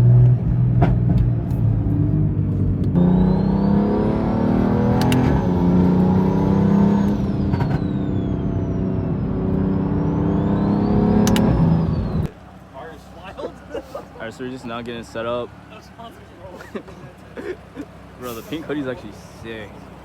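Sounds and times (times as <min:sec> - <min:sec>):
car engine accelerating: 0:00.0 - 0:12.7
sharp clicks: 0:05.0 - 0:05.4, 0:11.2 - 0:11.6.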